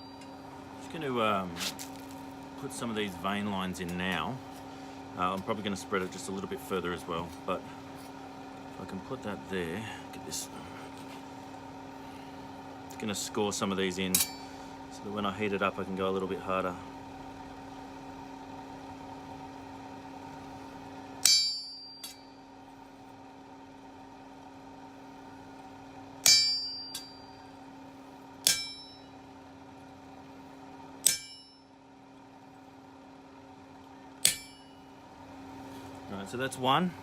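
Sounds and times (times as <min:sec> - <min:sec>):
steady hum: 0:00.0 - 0:37.0
hammer striking steel: 0:14.1 - 0:14.5, 0:21.2 - 0:22.2, 0:26.2 - 0:27.4, 0:28.4 - 0:29.1, 0:31.0 - 0:31.7, 0:34.2 - 0:34.8.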